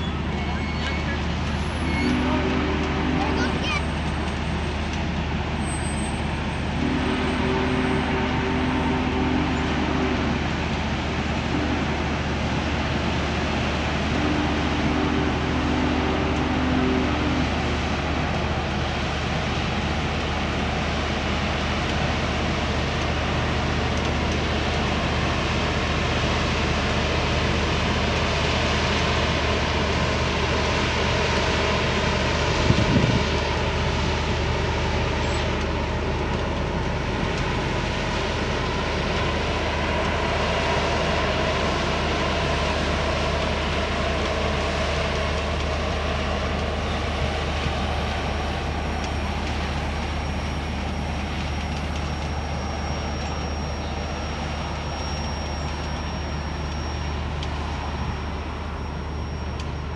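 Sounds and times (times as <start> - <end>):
train cars rolling on rails: 0.0 - 59.9
low hum: 6.4 - 21.0.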